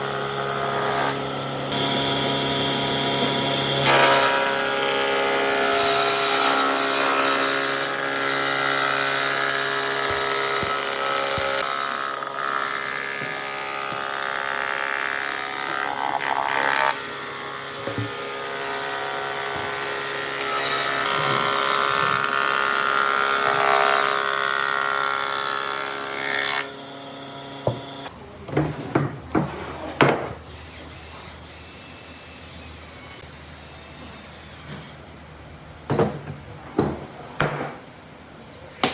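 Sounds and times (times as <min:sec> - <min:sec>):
electric power tool on wood: 0:00.0 - 0:28.1
wood knocking and clattering: 0:35.9 - 0:37.8.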